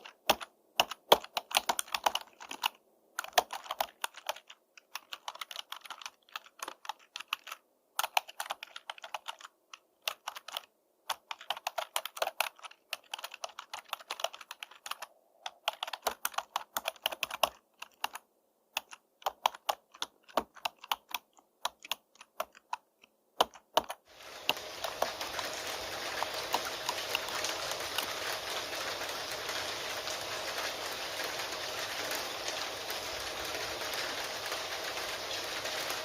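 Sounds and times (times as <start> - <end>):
keyboard key clicks: 0.0 - 24.0
steady rain hiss: 24.1 - 36.0.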